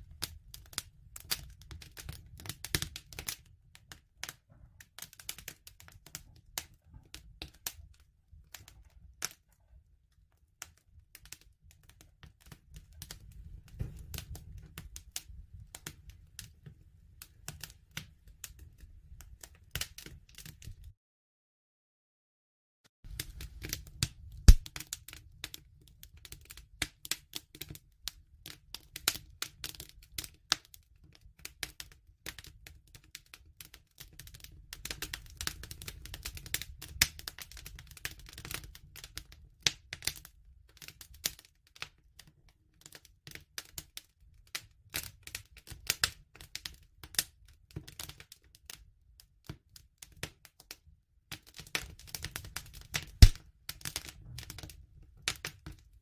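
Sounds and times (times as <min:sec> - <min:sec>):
low rumble of burning: 0:00.0 - 0:20.9, 0:23.1 - 0:41.4, 0:51.8 - 0:56.0
wood fire crackling: 0:00.0 - 0:20.9, 0:23.1 - 0:41.9, 0:42.8 - 0:48.7, 0:51.4 - 0:55.9.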